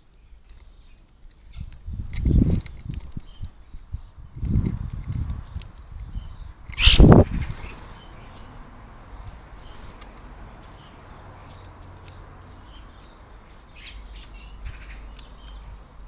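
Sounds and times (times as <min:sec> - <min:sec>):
starlings chirping and whistling: 0:05.0 - 0:10.0, 0:12.4 - 0:15.8.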